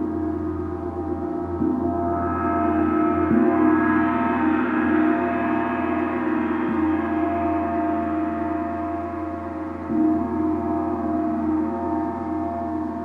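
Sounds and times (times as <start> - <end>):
deep hum: 1.8 - 10.0
gong ringing: 2.2 - 8.8.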